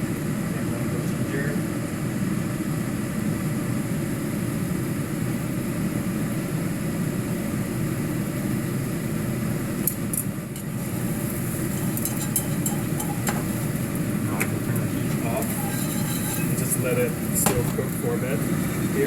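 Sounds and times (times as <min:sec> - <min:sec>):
stove low rushing noise: 0:00.0 - 0:19.0
utensil clinking against pan: 0:11.6 - 0:17.8.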